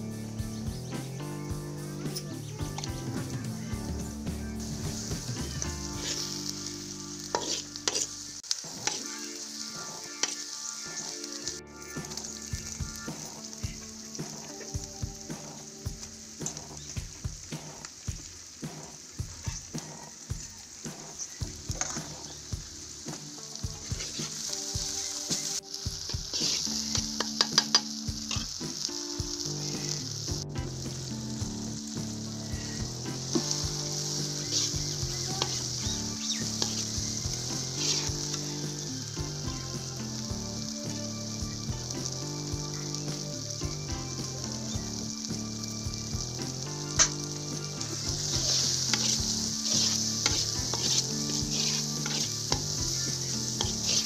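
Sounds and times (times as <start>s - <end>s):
vegetables sizzling in oil: 0.0s - 54.0s
spoon scraping a pan: 5.0s - 9.2s, 23.8s - 28.7s, 32.3s - 38.8s, 46.9s - 54.0s.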